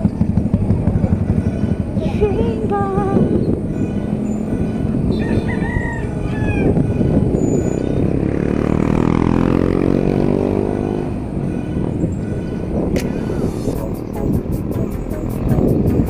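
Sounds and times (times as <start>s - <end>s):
road noise: 0.0s - 16.0s
rooster crowing: 5.1s - 6.8s
vehicle engine speeding up: 6.7s - 11.9s, 13.1s - 16.0s.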